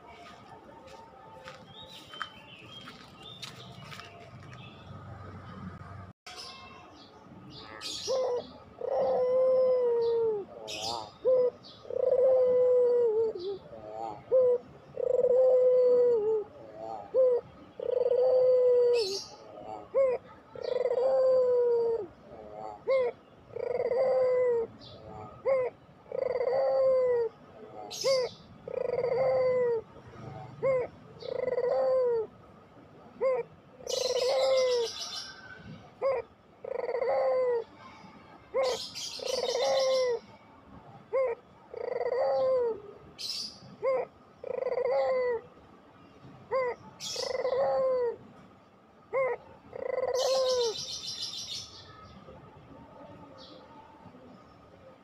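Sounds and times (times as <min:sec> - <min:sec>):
dove cooing: 0:07.7 - 0:32.4, 0:33.0 - 0:45.5, 0:46.5 - 0:48.3, 0:49.0 - 0:51.7.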